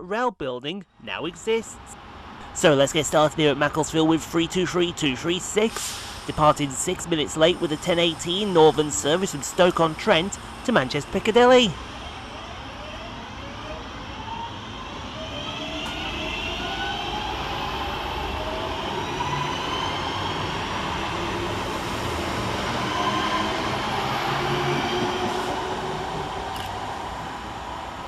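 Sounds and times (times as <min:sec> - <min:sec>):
wheels rumbling on rails: 0:01.8 - 0:28.0
electric train motors whining: 0:06.3 - 0:28.0.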